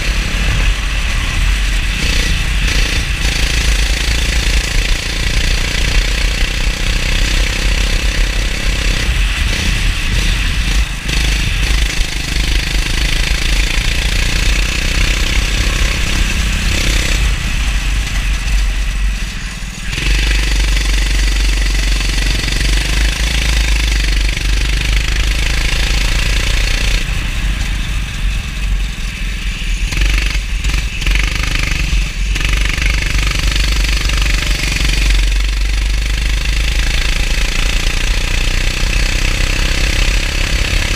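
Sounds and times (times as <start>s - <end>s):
kart engine running hard: 0.0s - 40.9s.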